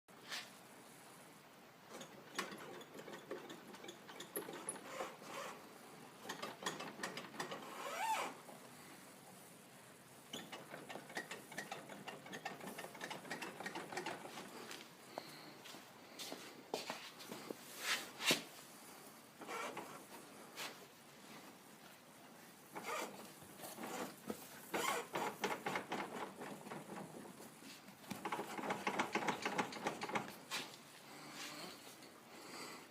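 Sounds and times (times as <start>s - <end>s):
wheel bearing clicking and knocking: 10.3s - 14.4s, 28.2s - 30.3s
wheel hub clicking and knocking: 28.2s - 30.3s.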